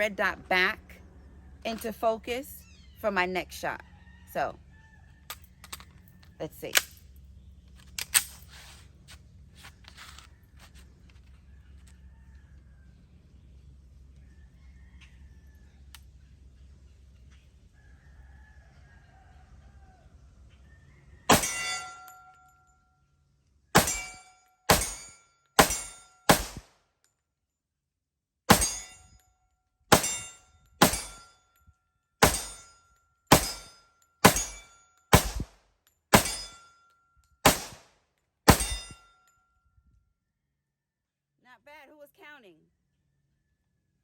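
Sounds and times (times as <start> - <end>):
pistol shots: 21.3 - 22.1, 23.8 - 26.7, 28.5 - 28.9, 29.9 - 31.2, 32.2 - 32.7, 33.3 - 36.6, 37.4 - 37.9, 38.5 - 39.0
steel target ringing: 21.3 - 22.4, 23.8 - 26.6, 28.5 - 29.2, 29.9 - 31.4, 32.2 - 35.5, 36.1 - 36.8, 37.4 - 37.8, 38.5 - 39.1.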